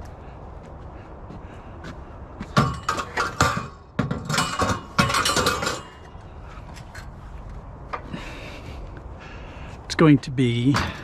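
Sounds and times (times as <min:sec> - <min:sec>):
scrap metal clanking: 0:02.6 - 0:07.2.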